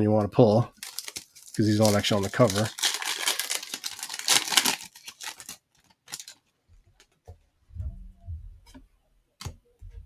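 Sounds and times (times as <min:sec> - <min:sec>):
pack wrapper crinkling: 0:00.7 - 0:06.4
soft low thumps: 0:07.6 - 0:09.0, 0:09.8 - 0:10.0.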